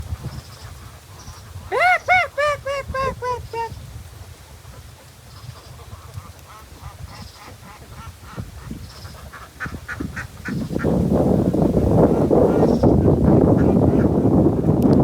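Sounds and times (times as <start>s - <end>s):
poultry calling: 1.7s - 3.7s.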